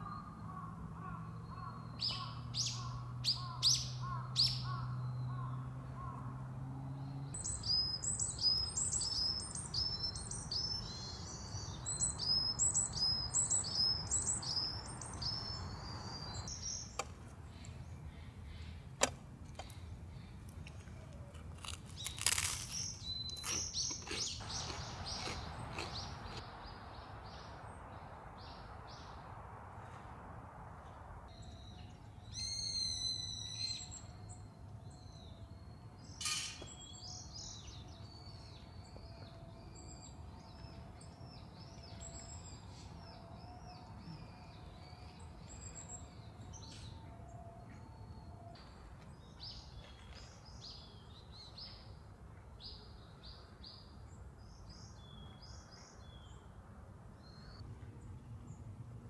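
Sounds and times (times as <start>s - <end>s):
birds chirping: 0.0s - 29.2s.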